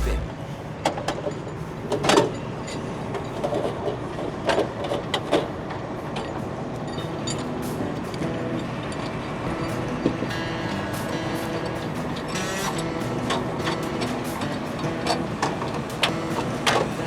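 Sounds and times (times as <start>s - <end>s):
truck engine running: 0.0s - 0.4s.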